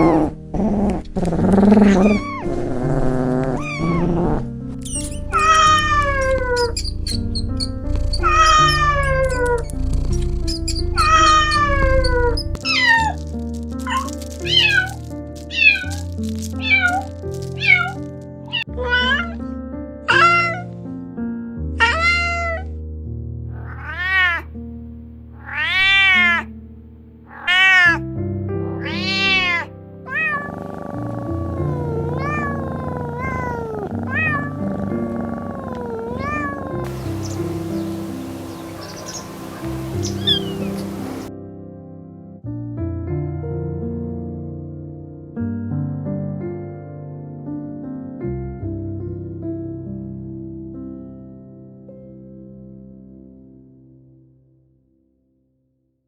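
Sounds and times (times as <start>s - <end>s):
background music: 0.0s - 42.0s
cat meowing: 1.7s - 2.7s, 3.5s - 4.4s, 5.2s - 9.7s, 10.7s - 13.2s, 13.8s - 16.0s, 16.6s - 19.4s, 20.1s - 20.7s, 21.8s - 22.7s, 23.5s - 24.5s, 25.4s - 26.5s, 27.3s - 28.0s, 28.8s - 41.3s.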